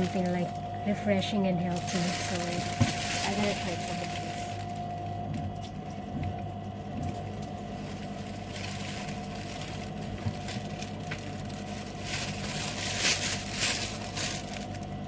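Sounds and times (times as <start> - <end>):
crackly rustling of bag: 0.0 - 15.0
low machine hum: 0.0 - 15.0.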